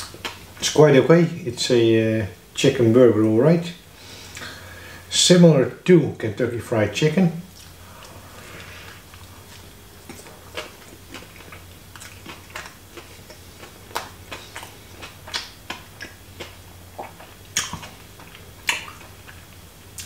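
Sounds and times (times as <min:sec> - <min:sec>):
person chewing with mouth clicks: 0:00.0 - 0:00.5, 0:07.5 - 0:20.0
faint low hum: 0:00.0 - 0:20.0.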